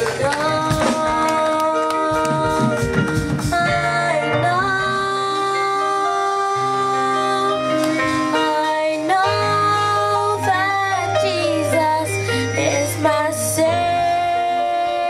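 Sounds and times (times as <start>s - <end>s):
drum strokes: 0.0s - 4.0s.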